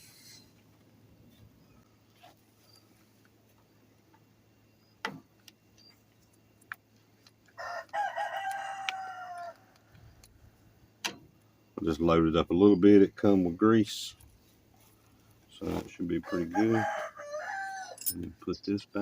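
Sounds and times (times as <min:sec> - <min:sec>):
rooster crowing: 0:07.6 - 0:09.9, 0:16.2 - 0:18.0.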